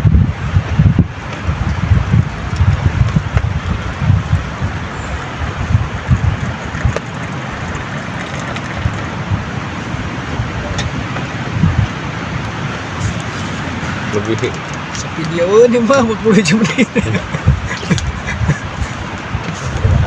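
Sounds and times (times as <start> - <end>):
storm wind gusting: 0.0 - 20.0
wind buffeting microphone: 0.0 - 20.0.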